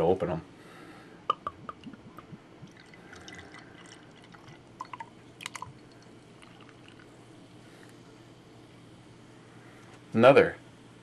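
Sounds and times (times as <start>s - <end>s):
beer pouring into a glass: 1.3s - 7.1s.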